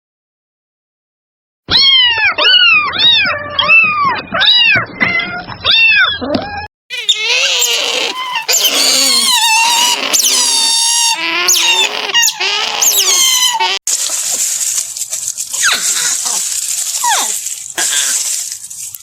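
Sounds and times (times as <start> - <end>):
cat meowing: 1.7 - 13.8
harsher cat sound: 6.9 - 13.8.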